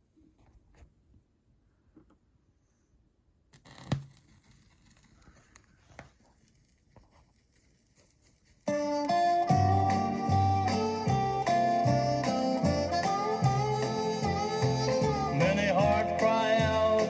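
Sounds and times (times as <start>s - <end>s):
guitar playing: 8.7s - 17.0s.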